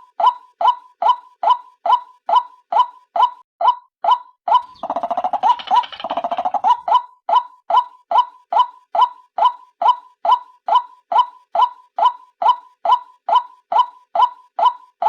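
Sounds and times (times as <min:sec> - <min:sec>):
harsh bird chattering: 0:04.6 - 0:06.9.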